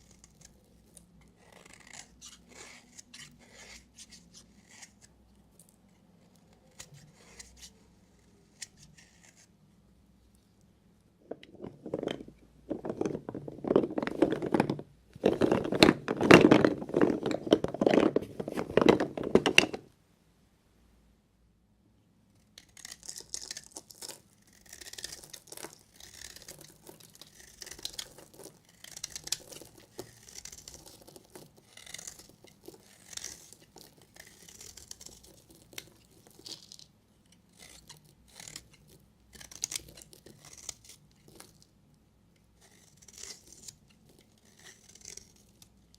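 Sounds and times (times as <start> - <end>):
blade scraping soap: 0.0 - 5.2, 6.2 - 9.5, 24.4 - 41.6, 42.6 - 45.7
knife cutting dry soap: 0.0 - 9.6, 22.4 - 41.7, 42.5 - 45.9.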